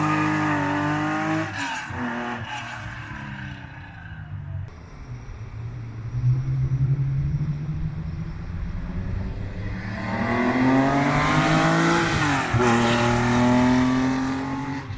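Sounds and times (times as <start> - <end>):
car engine accelerating past: 5.9 - 14.9.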